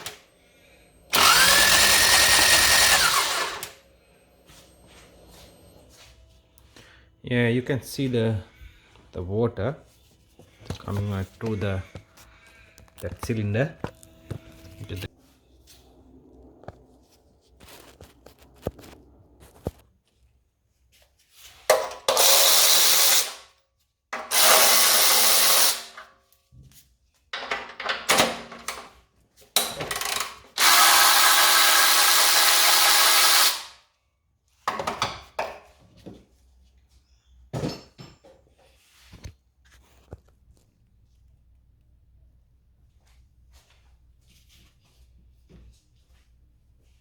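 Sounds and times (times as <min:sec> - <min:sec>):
starter motor cranking engine: 0:01.1 - 0:03.8
handling noises: 0:09.8 - 0:20.2.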